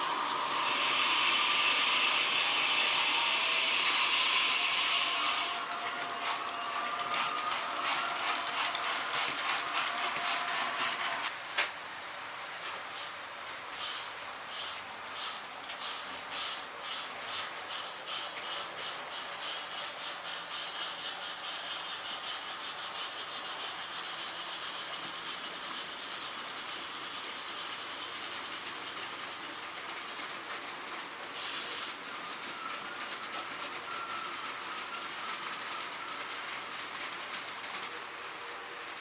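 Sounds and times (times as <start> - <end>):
model train rolling hum: 0.0 - 39.0
wheels clicking over track: 5.1 - 11.8.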